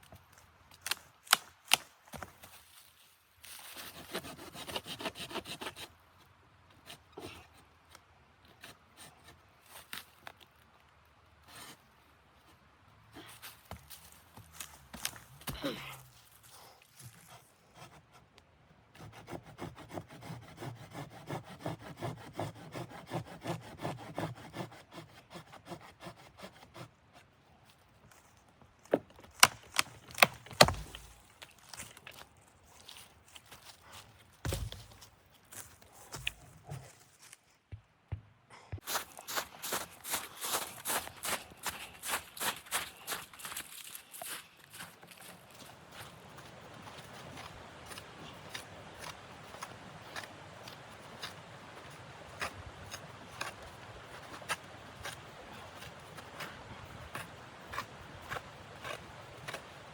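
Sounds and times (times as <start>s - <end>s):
saw cutting wood: 19.0s - 26.9s.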